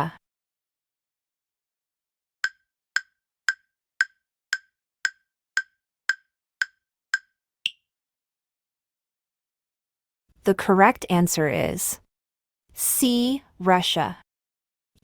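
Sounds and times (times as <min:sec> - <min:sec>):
countdown timer ticks: 0:02.4 - 0:07.8.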